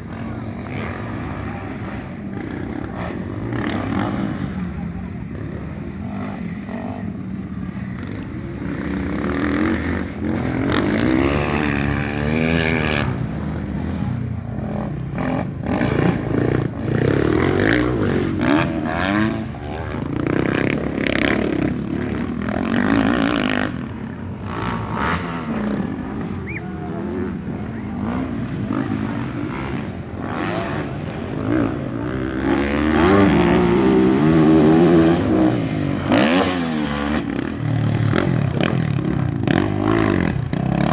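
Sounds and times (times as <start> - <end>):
racing motorcycle engines revving: 0.0 - 40.9.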